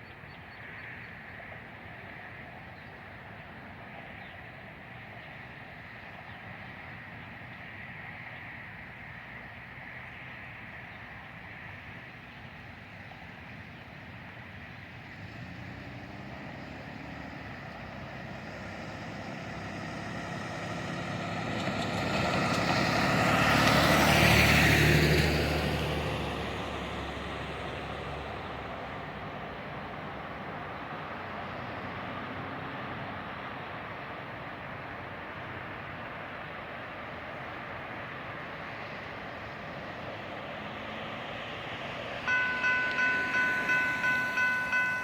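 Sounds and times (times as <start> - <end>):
freight train passing: 42.1 - 45.0.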